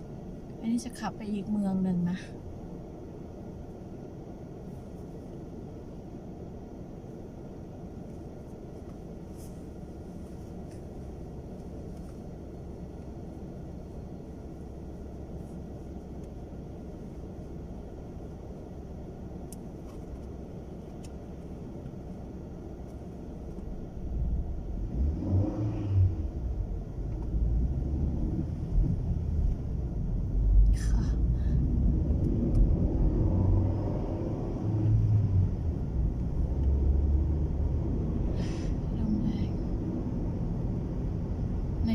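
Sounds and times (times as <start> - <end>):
road rumble inside car: 0.0 - 41.9
car engine accelerating: 23.4 - 41.9.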